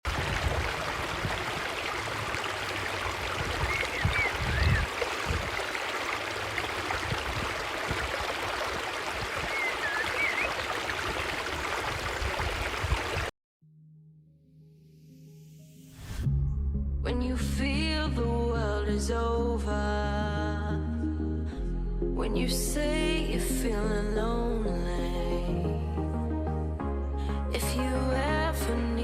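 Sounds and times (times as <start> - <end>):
water rushing like a stream: 0.0 - 13.3.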